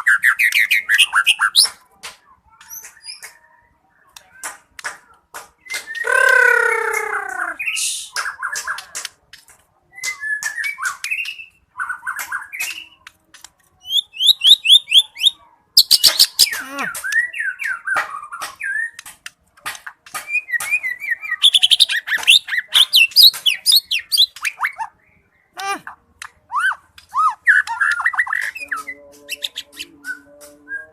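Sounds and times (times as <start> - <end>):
songbird singing: 5.6 - 9.1, 13.8 - 19.1, 20.1 - 30.9.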